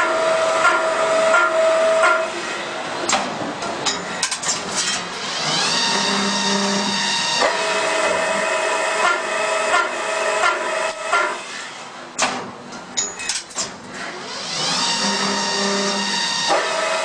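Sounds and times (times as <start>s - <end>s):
sharp metal clanks: 3.1s - 5.1s, 12.2s - 13.8s
lathe whining: 4.7s - 11.9s, 14.2s - 17.0s.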